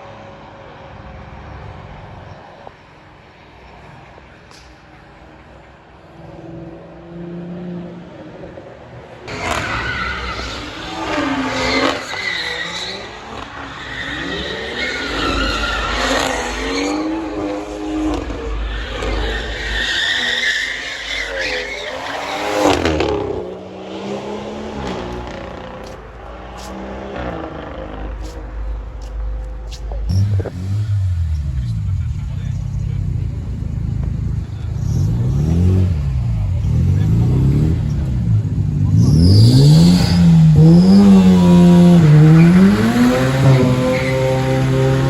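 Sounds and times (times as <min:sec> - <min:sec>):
tyres squealing: 0:09.3 - 0:23.4, 0:39.0 - 0:45.0
car engine revving hard: 0:21.6 - 0:28.4, 0:30.1 - 0:33.5, 0:34.4 - 0:45.0.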